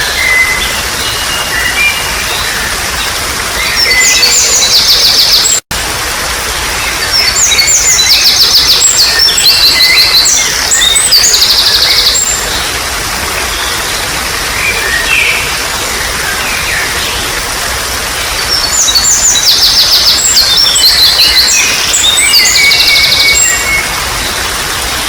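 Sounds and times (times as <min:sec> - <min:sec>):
trickling water: 0:00.0 - 0:25.0
songbirds trilling: 0:06.7 - 0:25.0.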